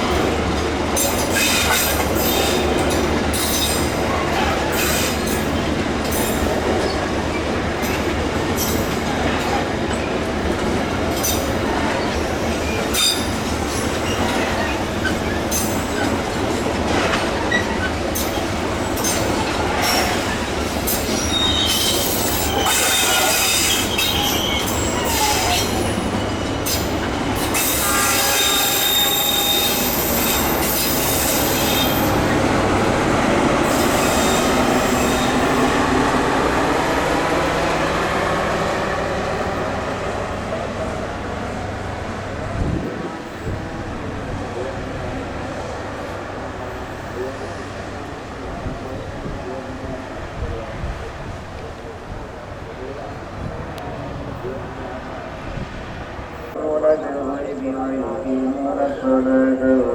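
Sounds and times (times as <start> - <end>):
train wheels clacking on rails: 0.0 - 41.1
high-pitched wheel squeal: 21.1 - 26.8, 27.6 - 32.0.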